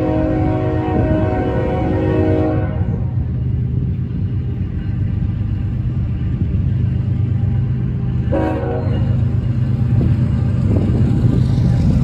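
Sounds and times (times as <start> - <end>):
train horn blast: 0.0 - 3.1, 8.3 - 9.2
diesel locomotive rumble: 0.0 - 12.0.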